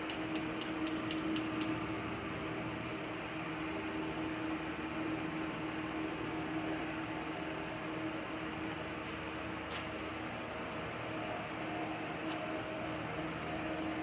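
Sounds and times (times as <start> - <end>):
sharp clicks: 0.0 - 1.8.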